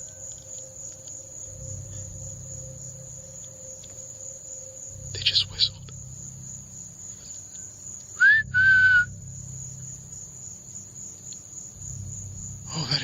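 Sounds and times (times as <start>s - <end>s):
crickets chirring: 0.0s - 13.0s
person whistling: 8.2s - 9.1s.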